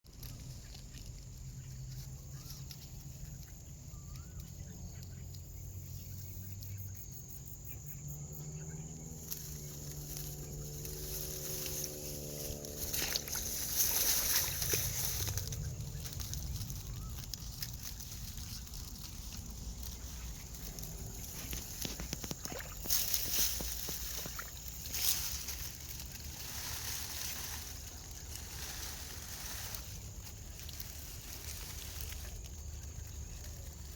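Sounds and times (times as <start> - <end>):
water splashes: 16.1 - 27.6
water sloshing: 16.1 - 29.8.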